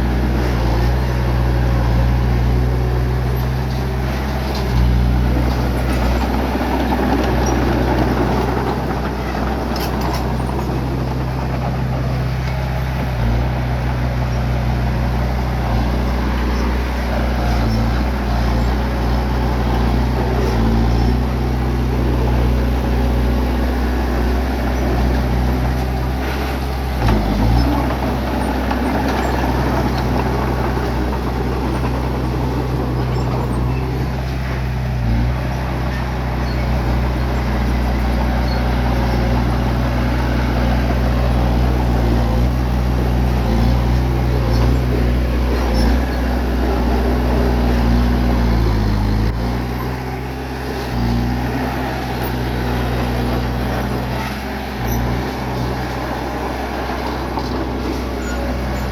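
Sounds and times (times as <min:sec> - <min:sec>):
bulldozer diesel engine: 0:00.0 - 0:58.9.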